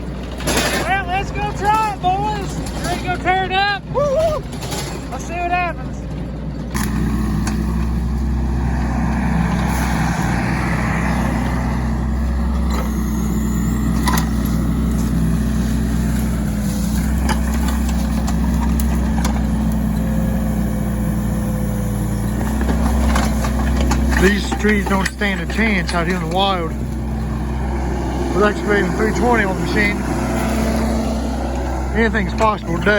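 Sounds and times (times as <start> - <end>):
excavator engine under load: 0.0 - 32.9
sharp knocks and clanks: 17.0 - 20.3, 22.3 - 32.9.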